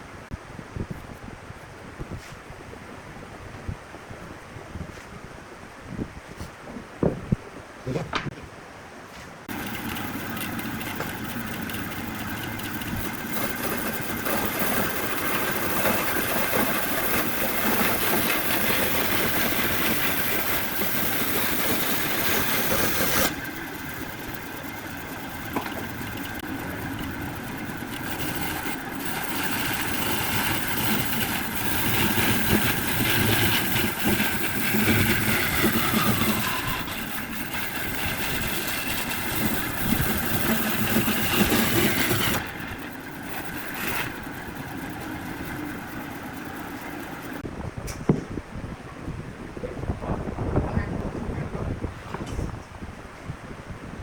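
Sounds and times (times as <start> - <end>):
wood lathe cutting wood: 9.5 - 47.4.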